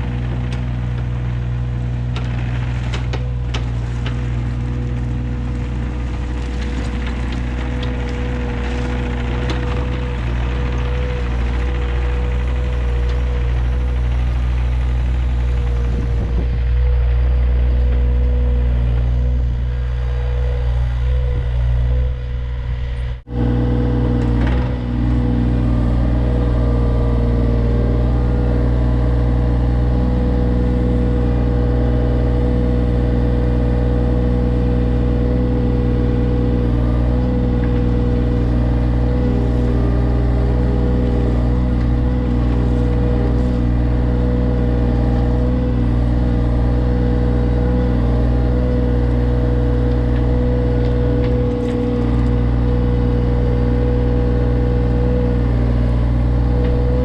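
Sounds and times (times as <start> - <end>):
excavator diesel engine running: 0.0 - 57.0
steady whine: 0.0 - 57.0.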